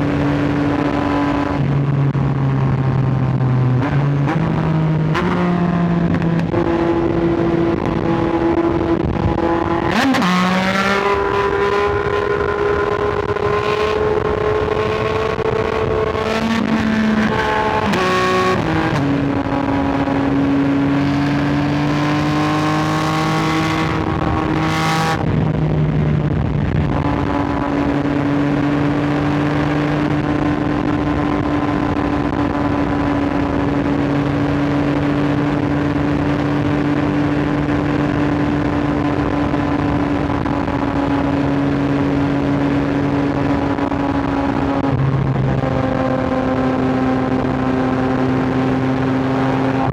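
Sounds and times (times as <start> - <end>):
motorcycle engine revving: 0.0 - 49.9
wind rush: 6.1 - 49.9.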